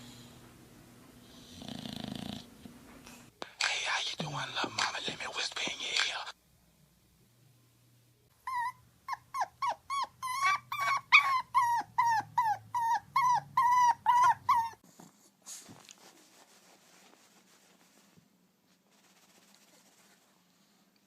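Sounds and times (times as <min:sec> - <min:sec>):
dog yelping: 0:08.4 - 0:14.8.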